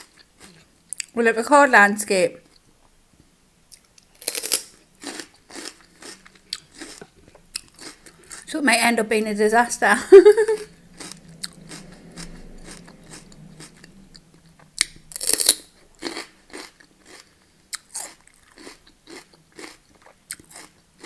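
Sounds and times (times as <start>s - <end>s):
person chewing crunchy food: 0.0s - 1.1s, 3.7s - 8.5s, 10.6s - 21.0s.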